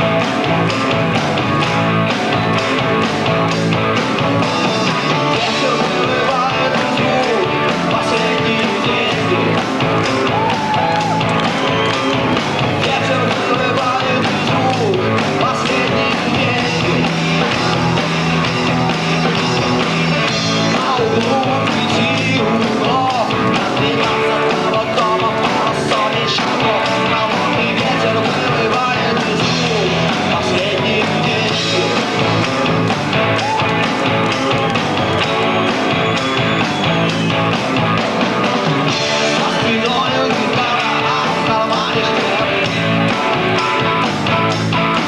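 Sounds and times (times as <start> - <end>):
rock band playing: 0.0 - 45.0.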